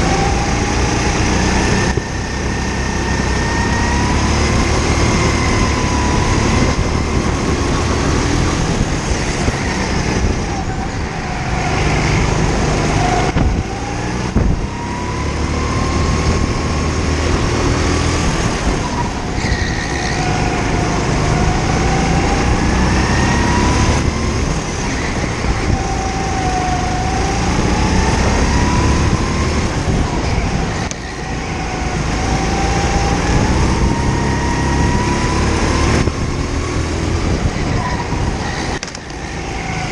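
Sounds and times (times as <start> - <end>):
go-kart engine accelerating: 0.0 - 39.9.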